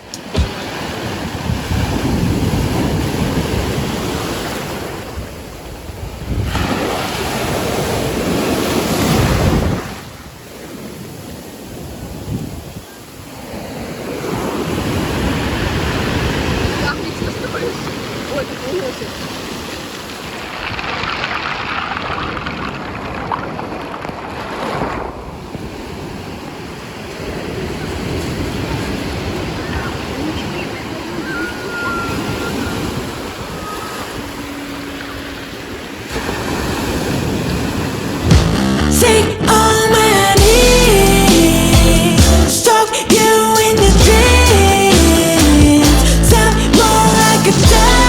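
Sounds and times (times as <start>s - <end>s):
wind buffeting microphone: 0.0s - 38.4s
sea waves washing onto shore: 0.0s - 38.5s.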